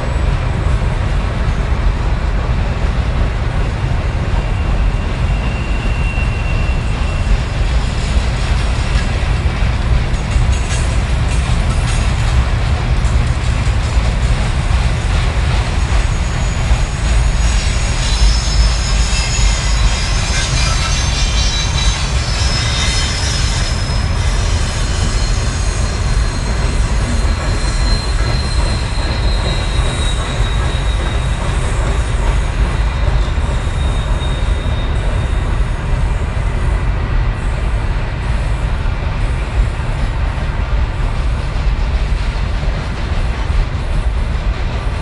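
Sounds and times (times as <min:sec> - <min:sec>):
freight train rumbling: 0:00.0 - 0:45.0
steel wheel squeal: 0:03.6 - 0:09.3, 0:15.3 - 0:36.6.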